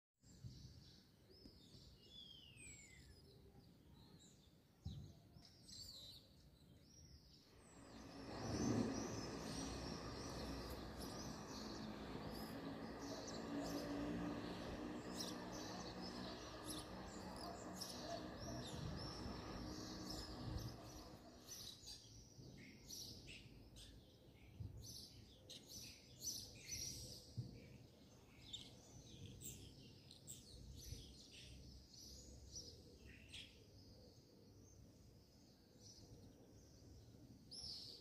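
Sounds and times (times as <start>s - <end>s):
small birds chirping: 0.2s - 38.0s.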